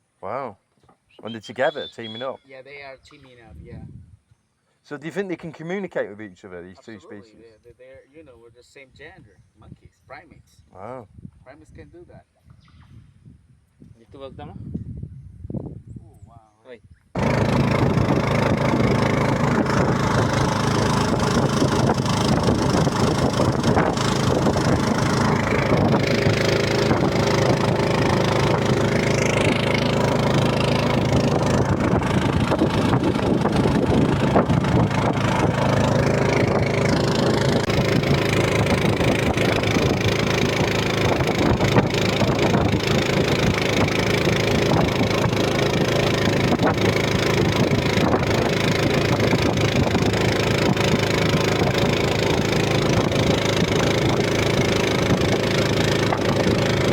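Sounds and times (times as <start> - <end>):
engine running steadily: 17.2 - 56.9.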